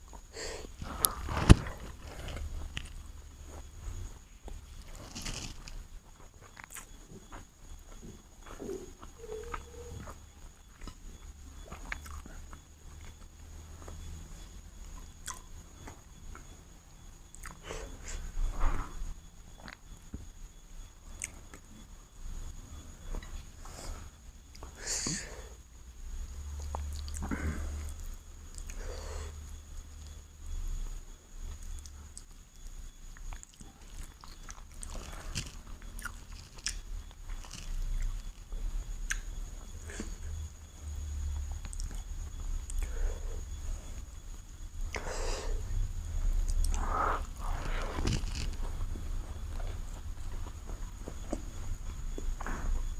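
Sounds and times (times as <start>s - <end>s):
steady low hum: 0.0s - 52.9s
close chewing mouth sounds: 4.8s - 14.0s, 33.2s - 38.4s.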